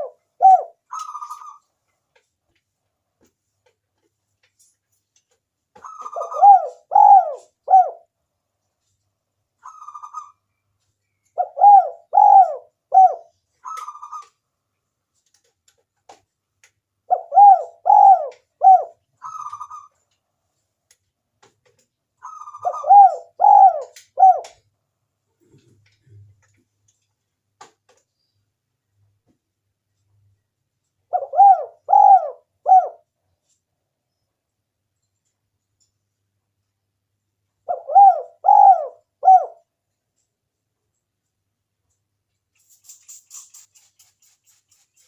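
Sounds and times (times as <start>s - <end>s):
dove cooing: 0.0s - 1.6s, 5.8s - 8.1s, 11.4s - 14.3s, 17.1s - 19.9s, 22.2s - 24.6s, 31.1s - 33.1s, 37.6s - 39.7s.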